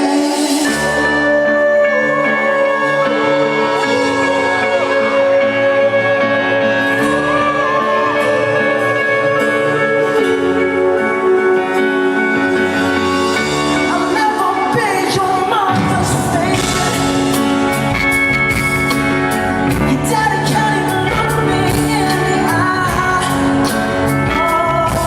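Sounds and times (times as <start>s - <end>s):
keyboard chords: 0.0s - 25.0s
live pop ballad band: 0.0s - 25.0s
man singing: 13.4s - 17.9s, 19.7s - 25.0s.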